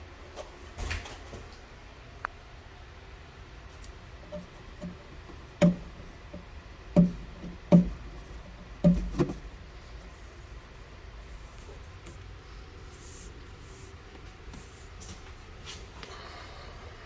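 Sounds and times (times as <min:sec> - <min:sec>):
hollow knocks: 0:04.2 - 0:09.6.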